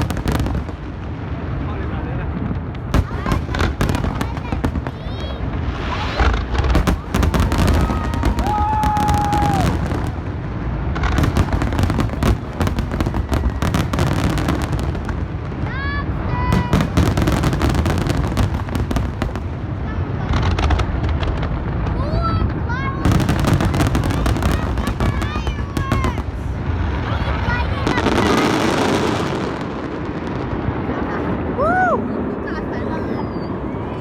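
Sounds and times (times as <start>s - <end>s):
low rumble of booms: 0.0s - 31.6s
fireworks crackling and popping: 0.0s - 34.0s
spectators calling out: 3.0s - 10.2s, 11.4s - 14.8s, 23.0s - 26.3s
people whooping: 6.8s - 10.2s, 12.8s - 14.5s, 31.1s - 34.0s.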